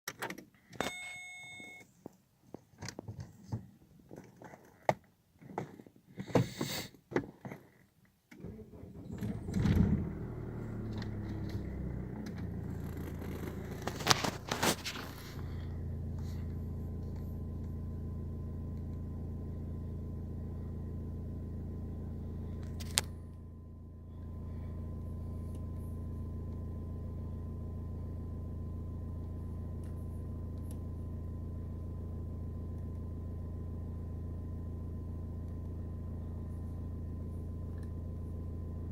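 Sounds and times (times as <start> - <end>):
diesel engine starting and idling: 8.4 - 38.9.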